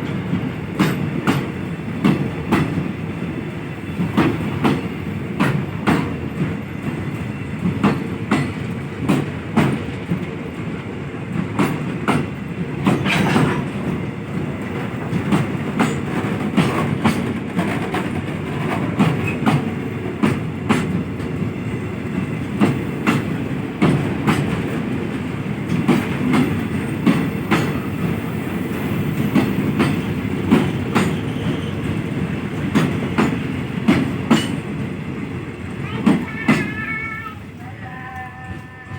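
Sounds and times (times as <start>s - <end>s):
freight train rumble: 0.0s - 38.9s
wheels clacking over rail joints: 11.4s - 36.9s.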